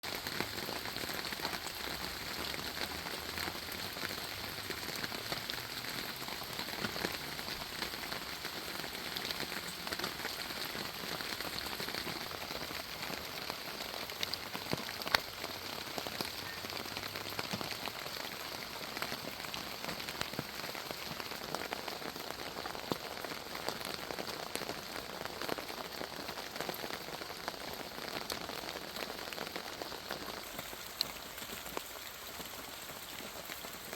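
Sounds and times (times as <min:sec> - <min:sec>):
rain on leaves: 0:00.0 - 0:33.9.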